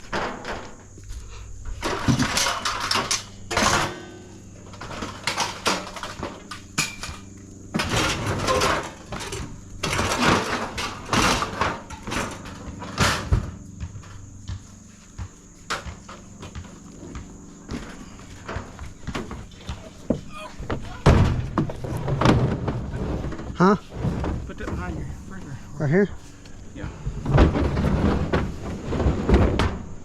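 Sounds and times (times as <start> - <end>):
scrap metal clanking and scraping: 1.7 - 13.6, 17.7 - 29.9.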